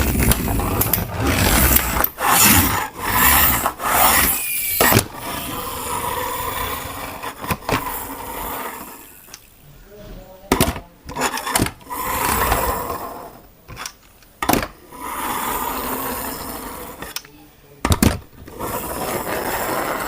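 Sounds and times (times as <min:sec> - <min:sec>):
toy electric motor and gears whirring: 0:00.0 - 0:09.5, 0:11.1 - 0:13.4, 0:18.5 - 0:20.0.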